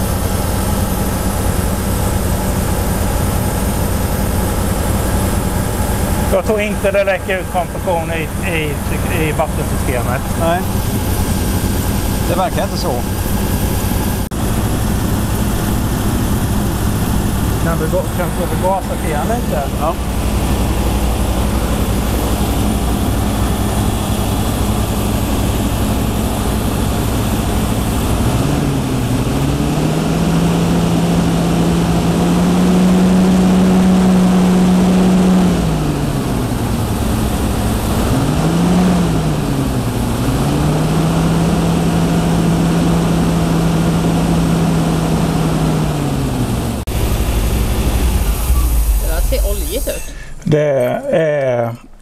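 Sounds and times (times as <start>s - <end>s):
car engine idling and revving: 0.0s - 51.2s.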